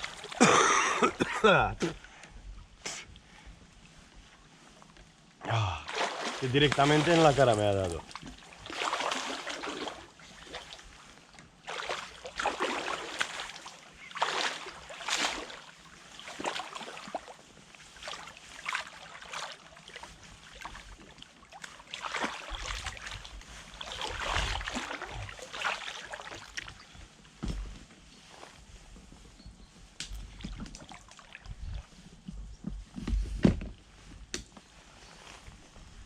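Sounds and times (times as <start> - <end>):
deep surge of water: 0.0 - 1.1, 5.4 - 11.0, 11.6 - 27.0
water splashing and sloshing: 0.0 - 34.2.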